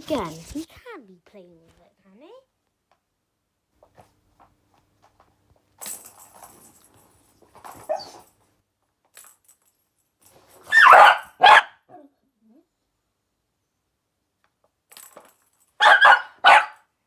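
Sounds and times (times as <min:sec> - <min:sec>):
dog barking: 0:07.8 - 0:08.2, 0:10.7 - 0:12.0, 0:15.8 - 0:16.9.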